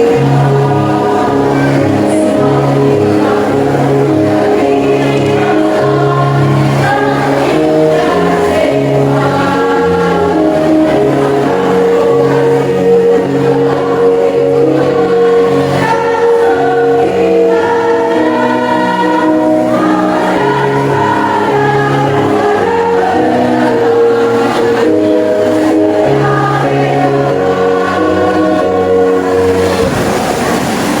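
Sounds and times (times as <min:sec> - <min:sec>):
choir singing in harmony: 0:00.0 - 0:31.0.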